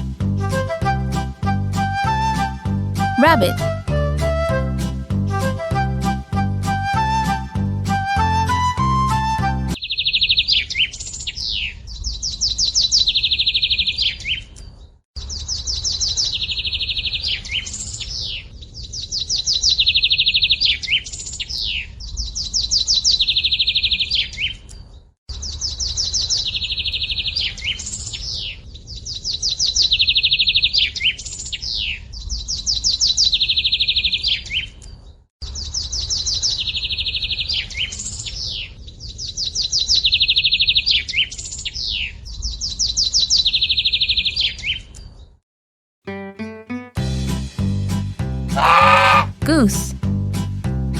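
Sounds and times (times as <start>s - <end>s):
songbird trilling: 48.6s - 49.4s.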